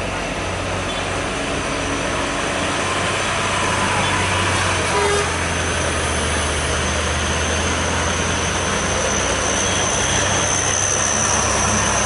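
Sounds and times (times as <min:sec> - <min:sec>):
heavy truck engine running: 0:00.0 - 0:12.0
road noise: 0:00.0 - 0:12.0.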